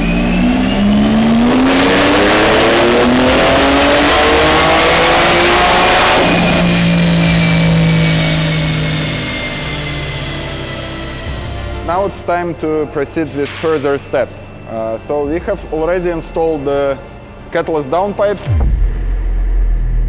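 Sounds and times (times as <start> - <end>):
car engine at full throttle: 0.0 - 12.1
faint high turbo whine: 0.0 - 19.0.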